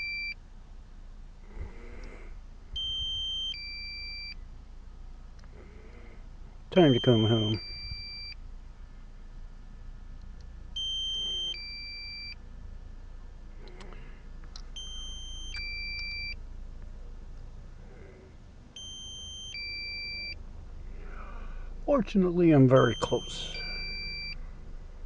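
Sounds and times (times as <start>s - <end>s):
two-tone warning beep: 0.0s - 0.4s, 2.8s - 4.4s, 6.8s - 8.4s, 10.8s - 12.4s, 14.8s - 16.4s, 18.8s - 20.4s, 22.7s - 24.4s.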